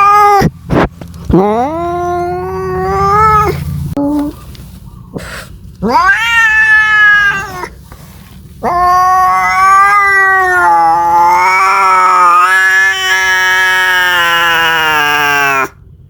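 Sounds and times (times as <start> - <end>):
cat yowling: 0.0 - 0.5, 1.4 - 3.6, 5.8 - 7.8, 8.6 - 15.8.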